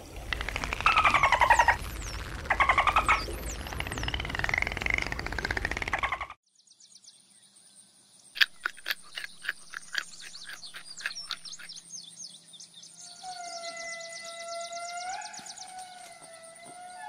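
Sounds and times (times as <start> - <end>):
animal chirping and twittering: 0.1 - 6.4, 8.4 - 11.9.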